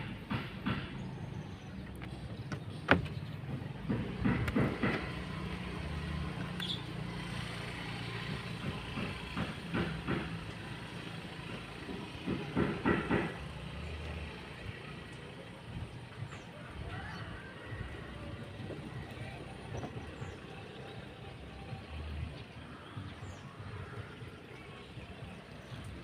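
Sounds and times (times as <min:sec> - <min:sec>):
sharp knocks and taps: 0:00.0 - 0:01.0, 0:01.9 - 0:05.3, 0:08.6 - 0:10.6, 0:11.5 - 0:13.6.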